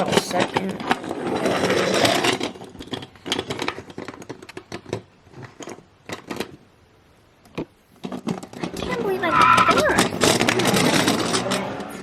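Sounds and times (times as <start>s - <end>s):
plastic toys clicking and tapping: 0.0s - 6.6s, 7.4s - 12.0s
rustle: 0.0s - 12.0s.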